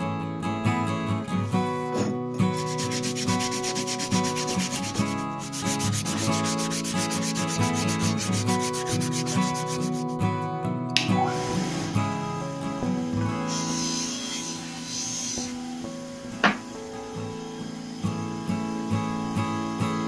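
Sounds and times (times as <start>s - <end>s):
background music: 0.0s - 20.0s
hand sanding strokes: 2.4s - 10.3s, 13.3s - 15.9s.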